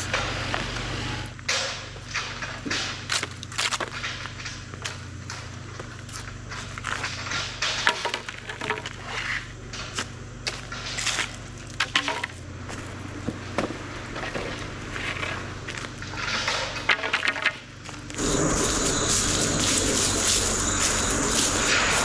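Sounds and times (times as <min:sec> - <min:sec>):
diesel engine running: 0:18.0 - 0:22.0
footsteps in dry leaves: 0:18.2 - 0:22.0.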